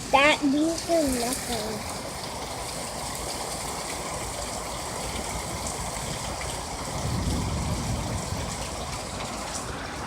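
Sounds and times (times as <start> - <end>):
heavy rain pouring: 0.0 - 10.0
low thunder rumble: 5.4 - 10.0.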